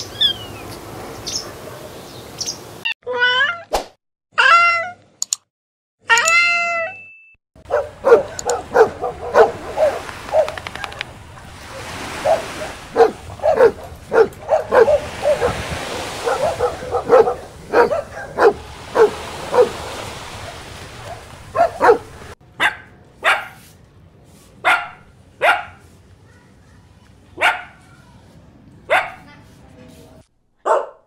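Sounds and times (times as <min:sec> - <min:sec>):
dogs barking: 0:07.6 - 0:23.6, 0:24.6 - 0:25.8, 0:27.4 - 0:27.9, 0:28.9 - 0:29.3, 0:30.6 - 0:31.0
puppy sharp barks: 0:07.7 - 0:19.8, 0:20.4 - 0:23.6, 0:24.6 - 0:25.8, 0:27.4 - 0:27.8, 0:28.9 - 0:29.3, 0:30.6 - 0:31.0.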